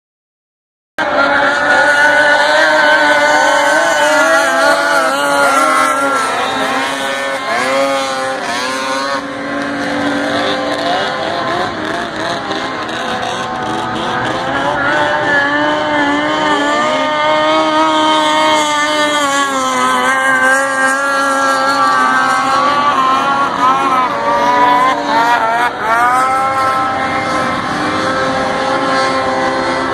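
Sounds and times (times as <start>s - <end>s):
snowmobile engines revving: 1.0s - 29.9s.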